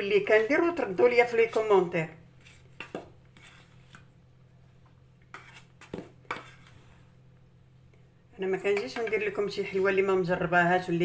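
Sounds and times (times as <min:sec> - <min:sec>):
quiet room hum: 0:00.0 - 0:11.0
knocks and scrapes on mixing bowl: 0:01.4 - 0:04.1, 0:05.3 - 0:07.1.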